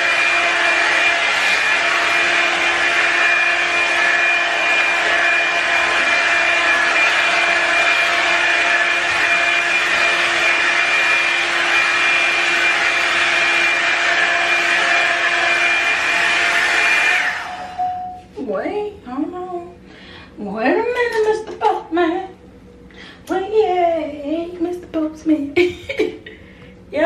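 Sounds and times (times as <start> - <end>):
blow dryer running: 0.0 - 18.4.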